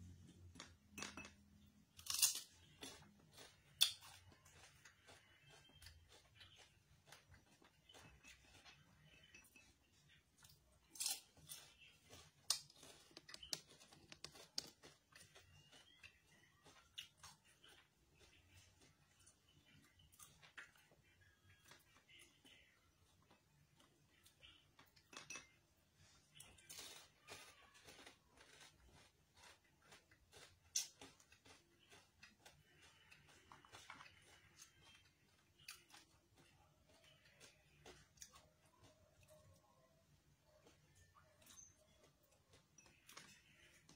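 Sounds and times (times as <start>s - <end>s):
soft chewing: 0.0s - 43.9s
crispy chicken skin crunching: 1.9s - 8.6s, 10.8s - 19.0s, 26.4s - 38.9s.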